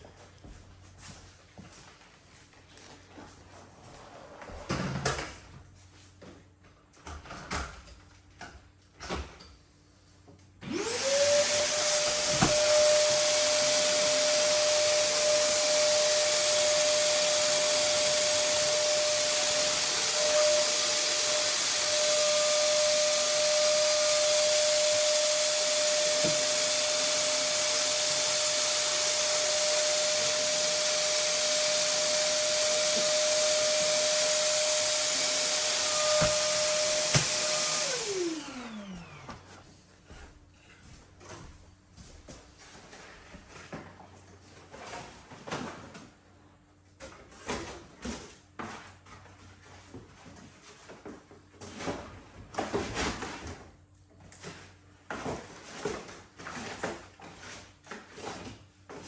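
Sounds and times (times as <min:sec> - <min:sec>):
wet saw motor whining: 0:10.7 - 0:39.3.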